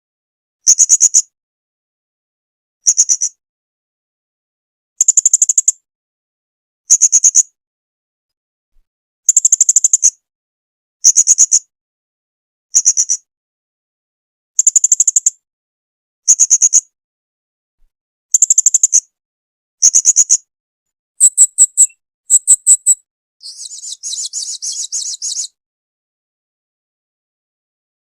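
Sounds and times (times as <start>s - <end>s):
parrot chirping: 21.2s - 25.5s.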